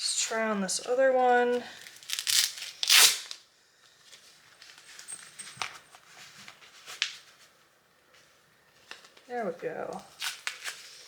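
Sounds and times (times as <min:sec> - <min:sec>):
glove ripping sounds: 0:01.8 - 0:03.4.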